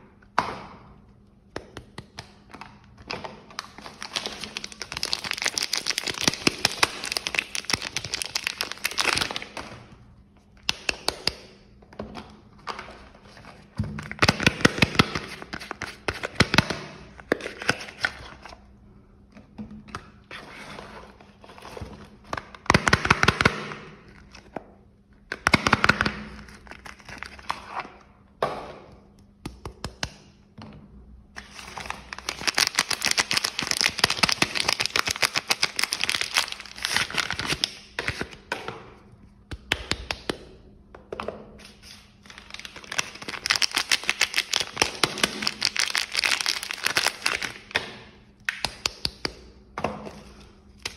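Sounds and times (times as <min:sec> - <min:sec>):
plastic and paper wrapping crinkling: 0:03.5 - 0:09.7, 0:31.4 - 0:38.2, 0:41.6 - 0:47.7.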